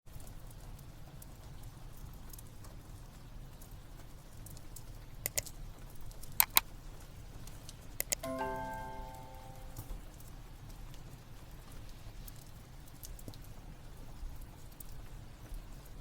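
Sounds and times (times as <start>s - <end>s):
soft sustained music notes: 8.2s - 9.9s.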